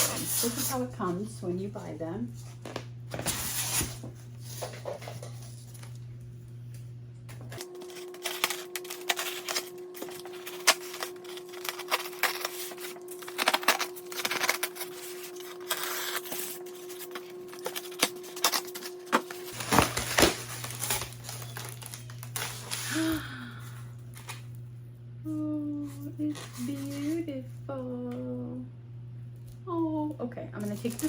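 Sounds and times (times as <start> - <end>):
scratching and crinkling: 0.0 - 6.1, 7.3 - 23.1, 25.8 - 27.4, 30.6 - 31.0
cardboard packaging being opened: 2.6 - 6.0, 7.5 - 23.2, 30.6 - 31.0.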